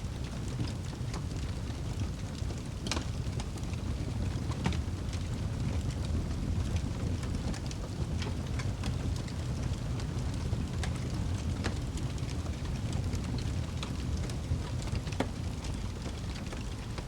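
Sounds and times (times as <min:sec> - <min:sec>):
fireplace flames rumbling: 0:00.0 - 0:17.0
wood crackling and popping: 0:00.0 - 0:17.0.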